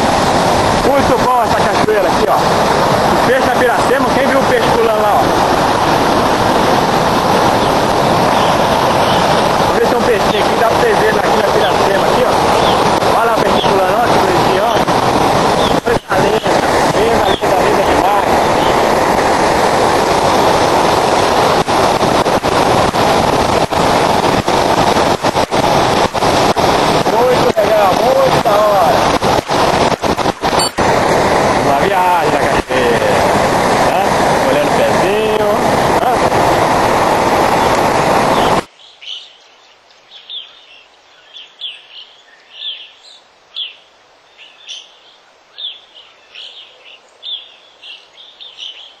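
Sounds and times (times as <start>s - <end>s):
waterfall roaring: 0.0s - 39.3s, 40.2s - 49.0s
bird chirping: 12.5s - 12.8s, 38.3s - 49.0s.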